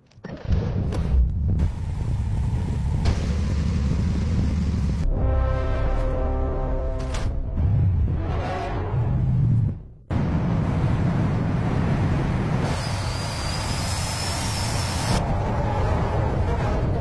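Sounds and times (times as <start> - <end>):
car engine low rumble: 0.8 - 6.8.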